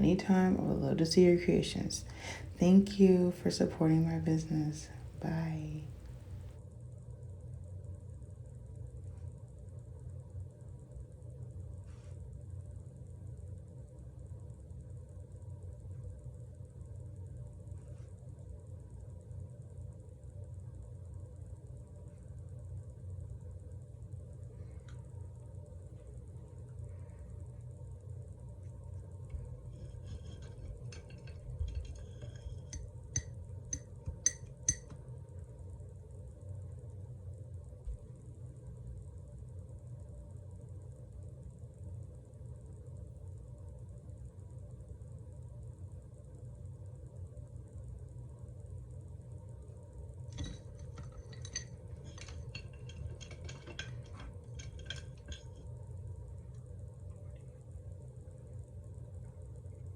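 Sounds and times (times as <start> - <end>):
brush stirring in water: 29.4 - 34.9, 50.4 - 55.7
brush clinking against glass: 29.7 - 35.0, 50.4 - 55.7.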